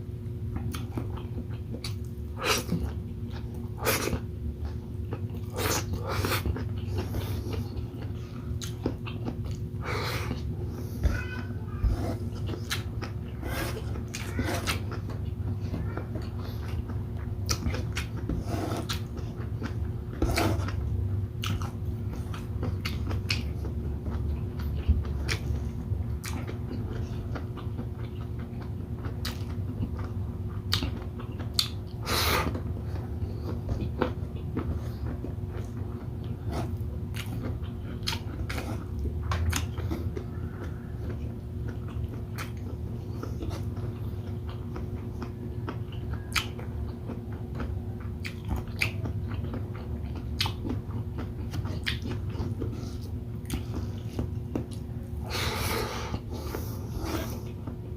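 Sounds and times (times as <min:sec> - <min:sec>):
chewing and biting: 0:00.5 - 0:10.6, 0:12.2 - 0:57.9.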